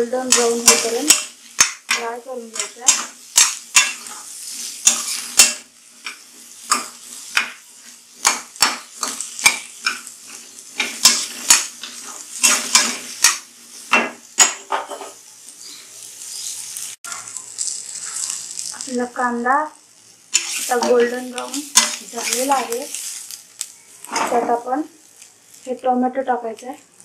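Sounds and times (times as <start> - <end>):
onions sizzling in oil: 0.0 - 27.0
metal spatula scraping a pan: 0.2 - 15.2, 16.3 - 18.8, 20.3 - 23.4, 24.0 - 24.7.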